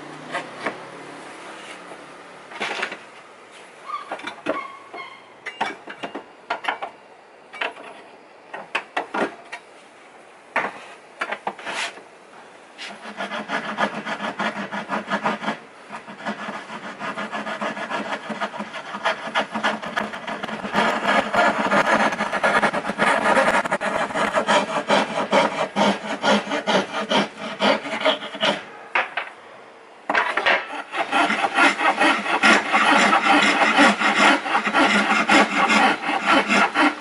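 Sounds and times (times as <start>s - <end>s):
tool scraping wood: 10.6s - 12.0s, 12.8s - 28.8s, 30.1s - 37.0s
fast rasping on wood: 13.0s - 28.6s, 30.8s - 37.0s.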